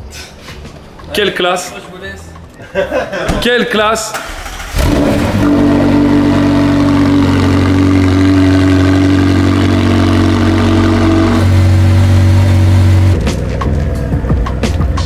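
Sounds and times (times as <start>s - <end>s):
car engine starting and idling: 4.0s - 15.0s.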